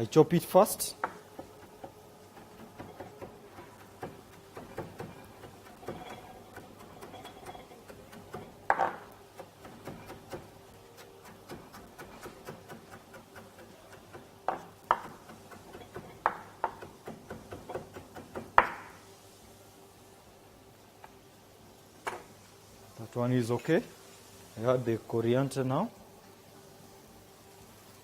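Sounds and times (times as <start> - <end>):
knife chopping on cutting board: 7.8 - 18.9.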